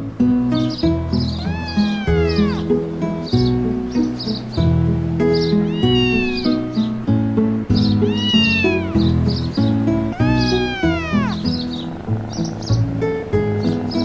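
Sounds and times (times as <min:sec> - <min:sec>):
cat meowing: 0:01.3 - 0:02.8, 0:05.5 - 0:06.7, 0:08.0 - 0:09.4, 0:10.0 - 0:11.6.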